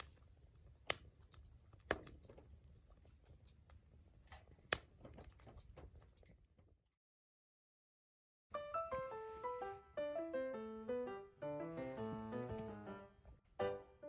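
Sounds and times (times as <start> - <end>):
sharp pops of fire: 0.0 - 2.4
wood fire crackling: 0.0 - 6.8.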